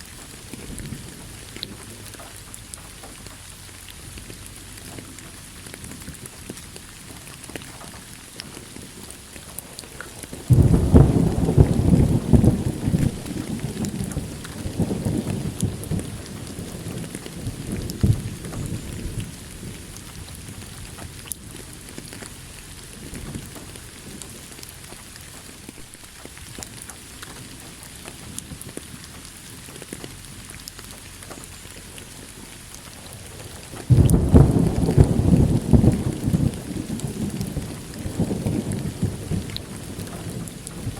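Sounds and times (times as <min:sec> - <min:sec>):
steady rain: 0:00.0 - 0:40.9
thunder rolling: 0:10.3 - 0:21.7, 0:32.9 - 0:40.9.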